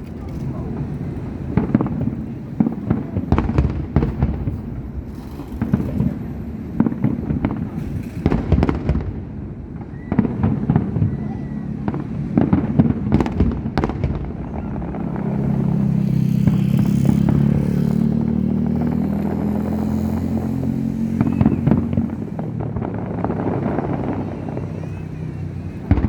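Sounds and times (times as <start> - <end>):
fireworks bangs and crackling: 0.0 - 26.0
motorcycle engine running: 15.0 - 22.1.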